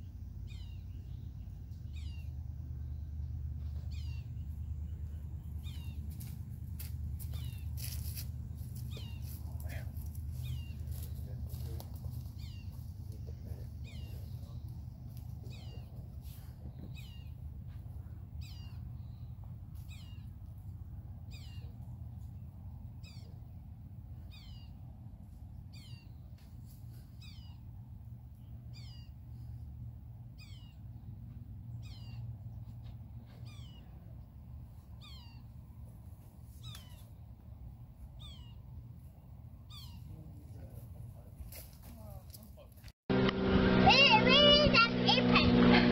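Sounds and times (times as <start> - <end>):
bird calling: 8.8 - 11.1, 13.8 - 14.6, 15.4 - 15.9.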